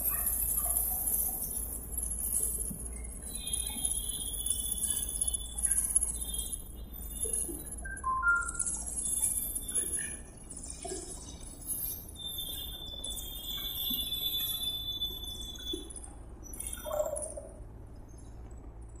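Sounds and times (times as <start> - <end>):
high whistle-like tone: 12.2 - 16.0.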